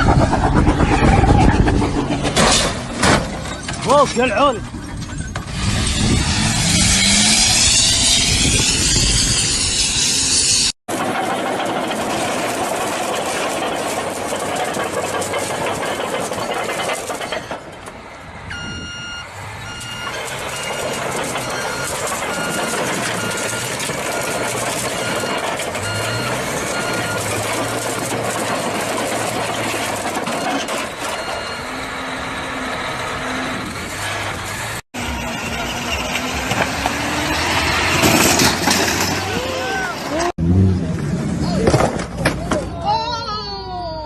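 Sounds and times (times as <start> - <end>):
vehicle road noise: 0.0 - 44.0
short electronic beeps: 18.5 - 27.3, 30.3 - 31.8.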